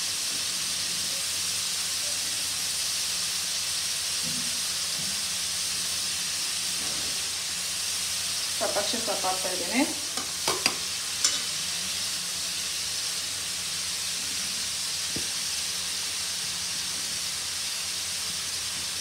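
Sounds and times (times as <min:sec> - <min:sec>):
onions sizzling in hot oil: 0:00.0 - 0:19.0
utensil clicking on pan: 0:10.1 - 0:11.5.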